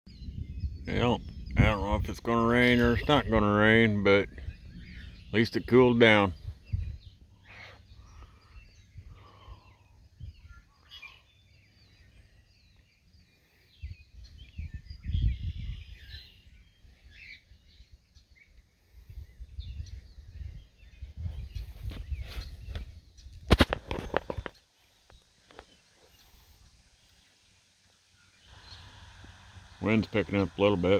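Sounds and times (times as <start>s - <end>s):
wind rumbling on microphone: 0.1s - 11.2s, 13.7s - 24.6s
birds chirping: 0.1s - 30.9s.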